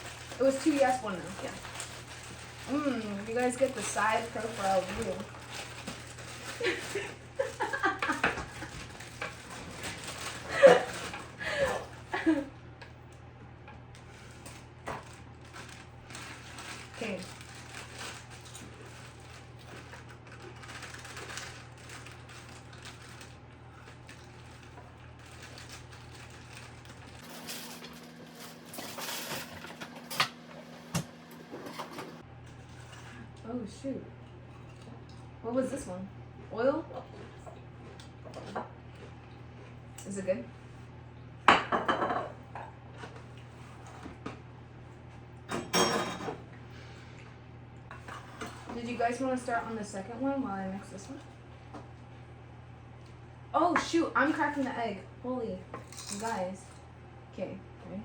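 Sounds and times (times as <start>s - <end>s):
baking supplies clicking and rattling: 0.0s - 12.4s, 14.9s - 23.4s
steady low hum: 0.0s - 58.0s
dishes and utensils clattering: 45.5s - 46.4s.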